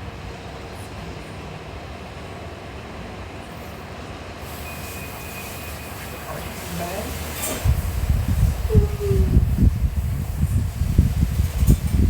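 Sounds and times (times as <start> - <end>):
steady rumbling noise: 7.6 - 12.0
faint high tone: 8.7 - 9.4.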